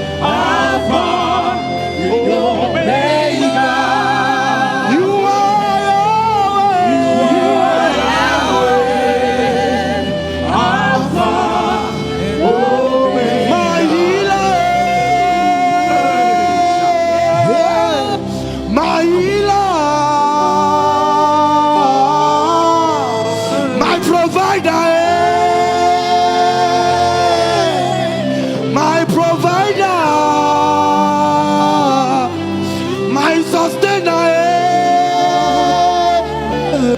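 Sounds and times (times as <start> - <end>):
gospel singing voices: 0.0 - 36.9
held keyboard chords: 0.0 - 36.9
sustained instrumental backing: 0.0 - 36.9.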